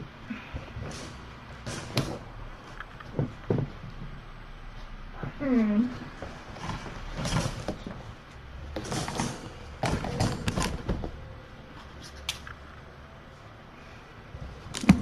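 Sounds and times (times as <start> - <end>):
objects knocking and rustling: 0.0 - 4.3, 6.0 - 12.6, 14.4 - 15.0.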